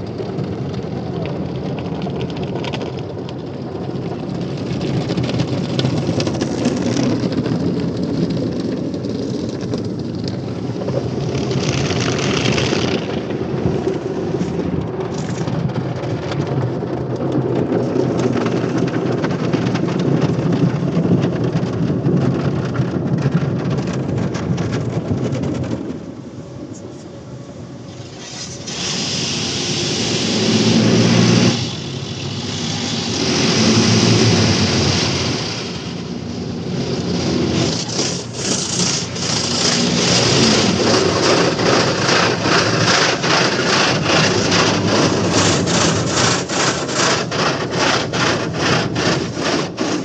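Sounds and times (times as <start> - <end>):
water spraying on a car: 27.8 - 50.0.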